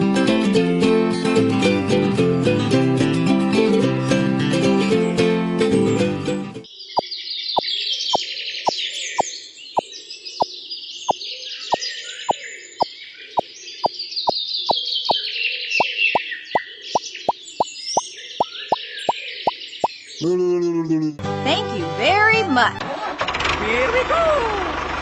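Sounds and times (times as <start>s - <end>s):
small birds chirping: 6.7s - 20.9s.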